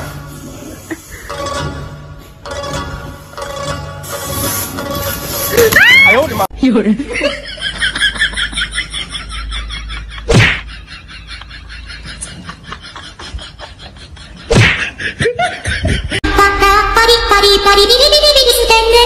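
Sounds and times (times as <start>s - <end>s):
music: 0.0s - 6.4s, 16.3s - 19.0s
faint laughter: 7.1s - 16.2s
loud sudden smacks: 10.3s - 10.7s, 14.5s - 15.0s.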